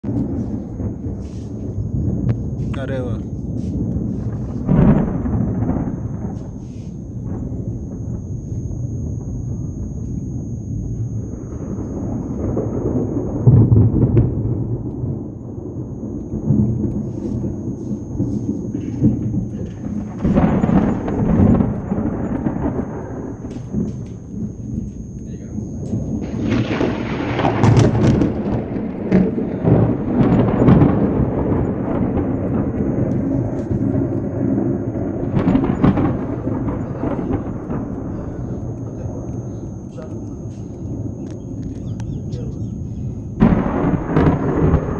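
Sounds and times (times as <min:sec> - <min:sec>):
thunder rumbling: 0:00.0 - 0:44.9
rain falling: 0:25.2 - 0:39.7.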